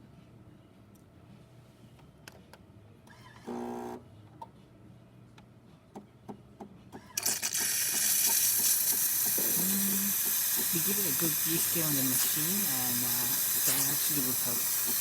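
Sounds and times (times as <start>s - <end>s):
espresso machine hum: 3.5s - 4.0s, 7.2s - 15.0s
steam hissing: 7.6s - 15.0s.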